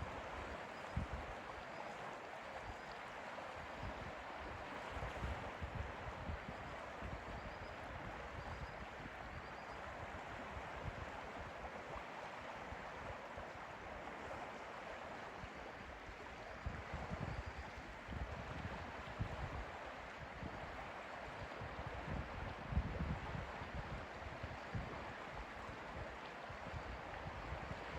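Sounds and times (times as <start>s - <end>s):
wind rumbling on microphone: 3.7s - 11.7s, 16.1s - 27.9s.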